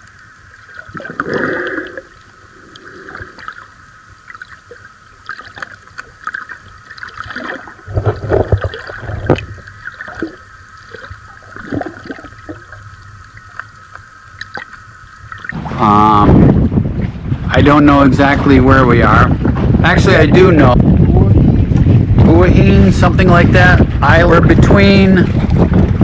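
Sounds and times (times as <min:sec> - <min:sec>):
water gurgling and sloshing: 0:00.0 - 0:26.0
underwater clicks: 0:04.3 - 0:15.6.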